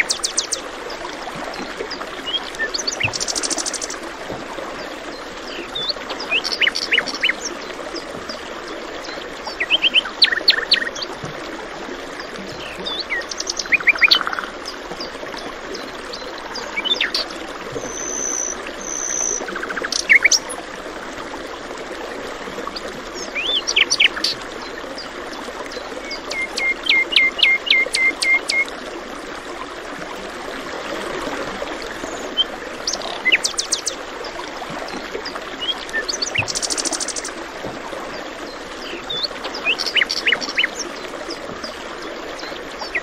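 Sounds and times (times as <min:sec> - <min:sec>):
songbirds chirping and trilling: 0:38.4 - 0:41.5.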